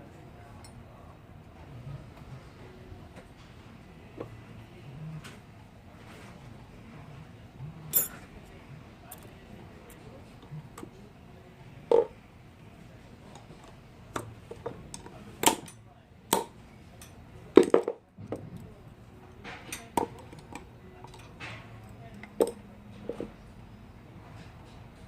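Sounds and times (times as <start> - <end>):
metal parts and tools clinking: 7.9 - 8.3.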